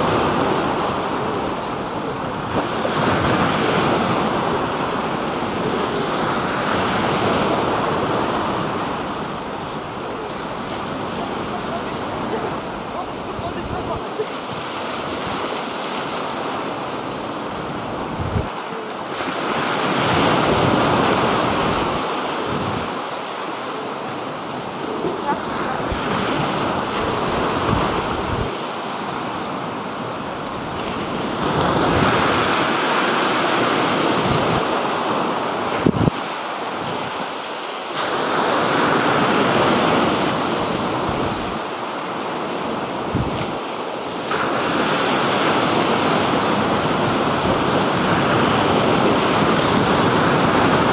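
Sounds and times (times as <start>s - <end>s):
waves washing onto shore: 0.0s - 50.9s
wind buffeting microphone: 17.7s - 18.6s, 25.8s - 28.6s, 35.7s - 36.3s, 43.0s - 43.6s.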